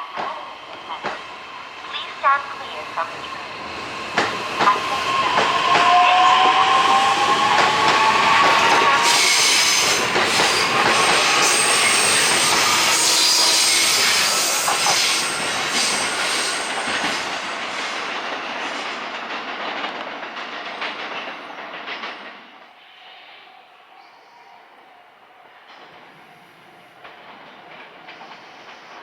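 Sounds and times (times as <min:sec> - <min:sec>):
rail joint clicks: 0:00.1 - 0:12.9
train wheels clattering on rails: 0:00.1 - 0:22.7, 0:25.6 - 0:29.0.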